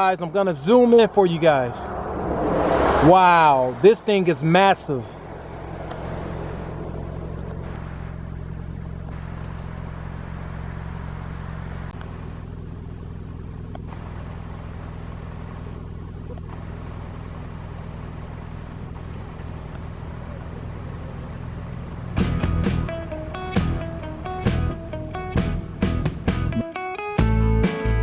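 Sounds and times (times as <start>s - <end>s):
car engine drone from cabin: 0.0s - 26.6s.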